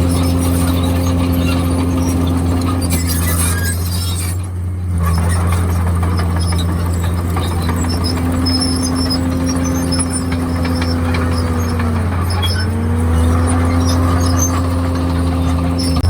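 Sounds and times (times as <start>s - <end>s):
bulldozer diesel engine running: 0.0s - 16.0s
track squeals: 0.0s - 16.0s.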